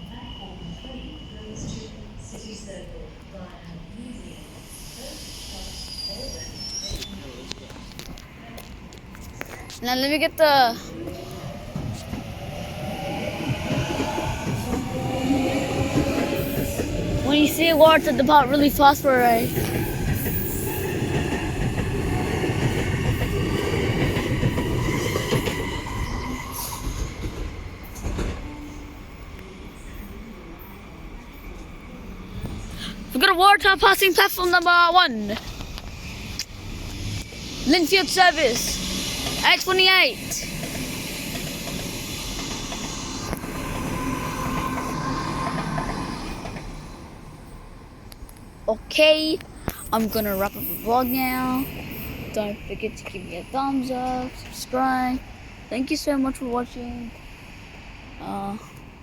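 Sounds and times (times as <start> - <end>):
electric train pulling out: 10.1 - 33.2, 35.2 - 48.2, 49.9 - 55.6.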